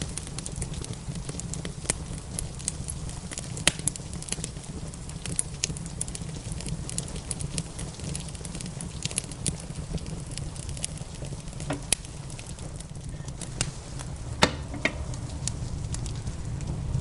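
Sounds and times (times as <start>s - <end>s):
wood fire crackling: 0.0s - 17.0s
low rumble: 11.2s - 17.0s.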